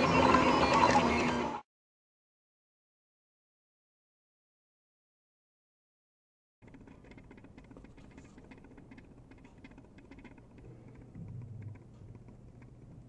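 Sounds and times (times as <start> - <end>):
low printer hum: 0.0 - 1.6, 6.6 - 13.0
printer ticking: 6.6 - 13.0.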